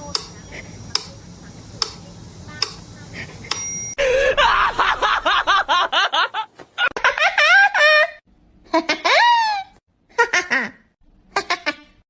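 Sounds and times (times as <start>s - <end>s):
light tick with high ring: 3.5s - 4.0s.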